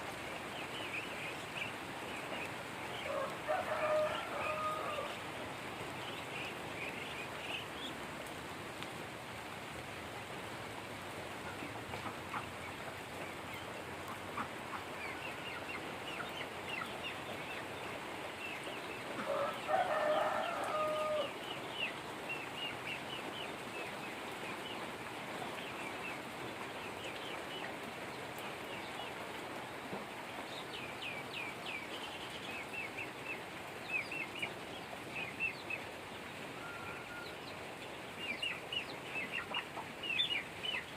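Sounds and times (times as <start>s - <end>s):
steady rain: 0.0s - 40.9s
rooster crowing: 3.1s - 5.2s, 19.2s - 21.4s, 36.6s - 37.4s
chicks peeping: 38.2s - 40.9s.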